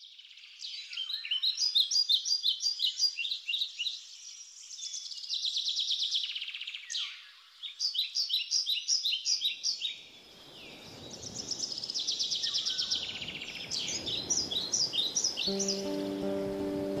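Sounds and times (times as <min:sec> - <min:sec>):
songbirds chirping: 0:00.0 - 0:17.0
bird trill: 0:15.1 - 0:17.0.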